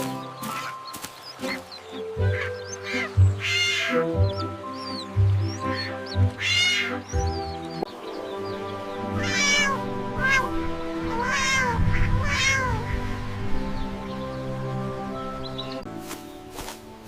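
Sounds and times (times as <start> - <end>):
background music: 0.0 - 17.0
cat meowing: 6.4 - 7.0, 9.2 - 12.9.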